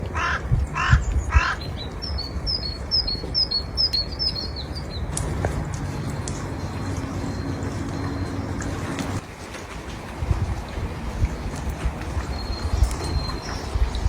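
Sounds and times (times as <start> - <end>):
harsh bird calls: 0.0 - 9.2
steady low rumble: 0.0 - 14.0.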